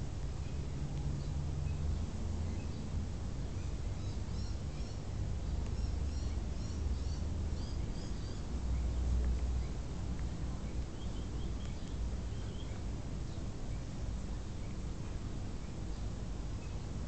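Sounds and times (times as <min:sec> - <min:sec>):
low steady rumble: 0:00.0 - 0:17.0
small birds chirping: 0:00.1 - 0:17.0.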